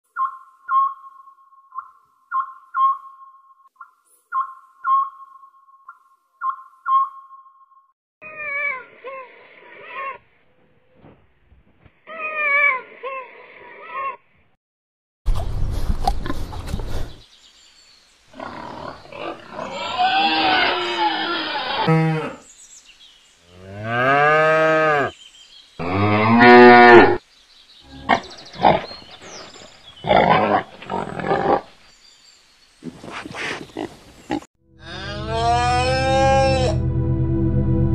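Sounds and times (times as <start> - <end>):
cow mooing: 25.8 - 27.2, 34.8 - 36.8
piglets grunting: 30.0 - 31.7.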